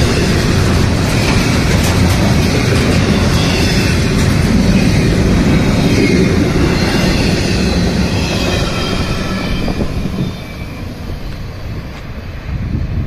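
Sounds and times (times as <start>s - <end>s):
train wheels rumbling and clattering: 0.0s - 13.0s
high wheel squeal: 2.7s - 12.0s.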